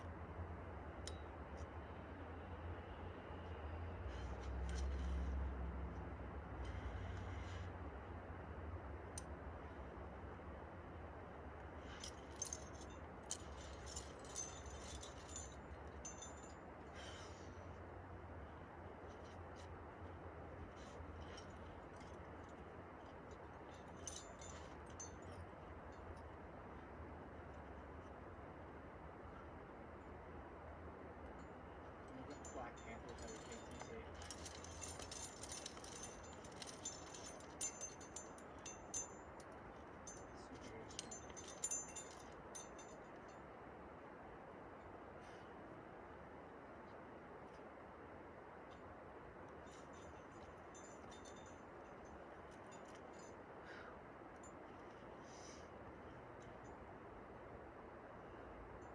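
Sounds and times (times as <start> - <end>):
climbing gear clinking: 3.5 - 7.7, 11.6 - 28.2, 31.2 - 43.6, 48.4 - 57.0.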